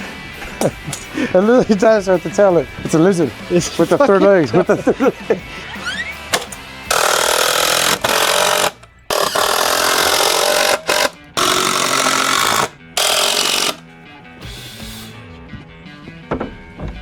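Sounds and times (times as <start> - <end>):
power tool running in bursts: 5.8 - 13.8, 14.4 - 15.2.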